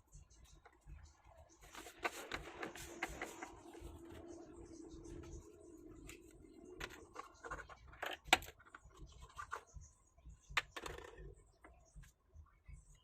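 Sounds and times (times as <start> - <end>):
scratching and handling noises: 0.0 - 9.9.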